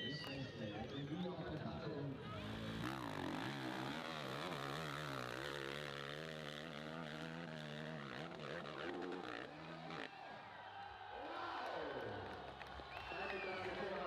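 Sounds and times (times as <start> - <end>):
motorcycle engine revving hard: 2.3 - 10.1.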